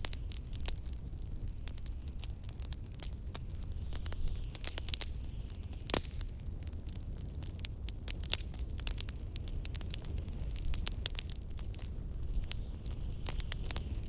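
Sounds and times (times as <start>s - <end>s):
wood fire crackling: 0.0s - 14.0s
wind rumbling: 8.2s - 14.0s.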